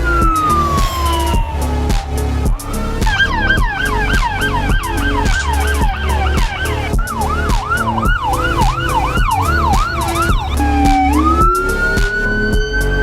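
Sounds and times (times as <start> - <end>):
background music with steady beat: 0.0 - 13.0
fire engine electronic siren: 0.0 - 13.0.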